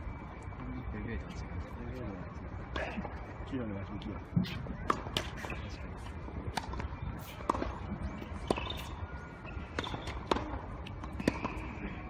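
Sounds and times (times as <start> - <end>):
ball bouncing: 6.6 - 7.8, 8.4 - 8.9, 9.7 - 11.6
racket striking tennis ball: 8.3 - 8.9.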